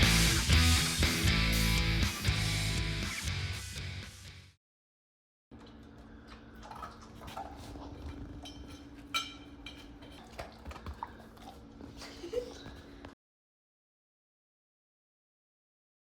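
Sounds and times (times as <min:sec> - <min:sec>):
closing music: 0:00.0 - 0:04.3
dog eating from a bowl: 0:05.6 - 0:12.8.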